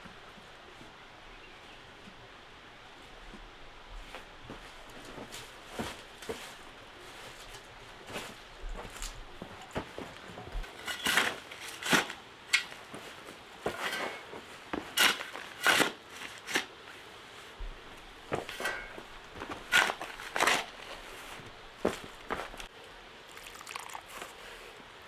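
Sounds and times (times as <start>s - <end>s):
crunching and rustling: 2.9s - 22.7s, 23.3s - 24.8s.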